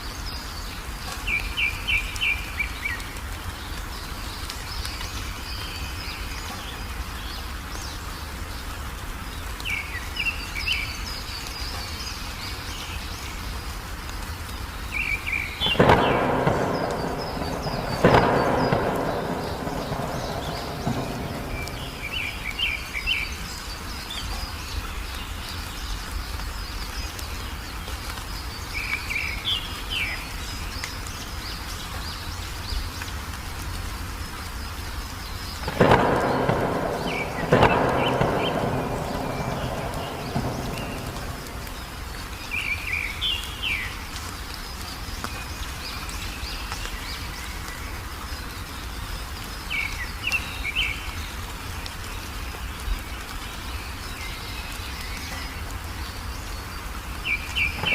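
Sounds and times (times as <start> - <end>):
steady rain: 0.0 - 57.9
birds chirping: 14.5 - 33.0, 34.4 - 51.5, 52.1 - 57.9
thunder cracks rolling: 15.6 - 23.3, 35.6 - 42.8, 57.6 - 57.9.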